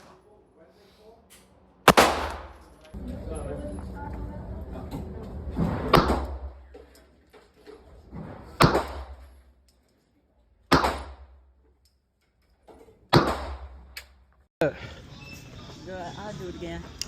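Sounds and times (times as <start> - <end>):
gunshots with echo: 1.9 - 2.7, 10.7 - 11.4.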